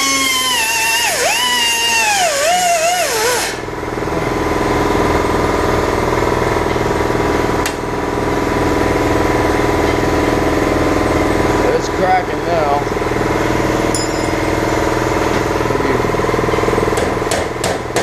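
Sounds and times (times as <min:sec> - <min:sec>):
grinder grinding steel: 0:00.0 - 0:03.6
motor hum: 0:00.0 - 0:18.0.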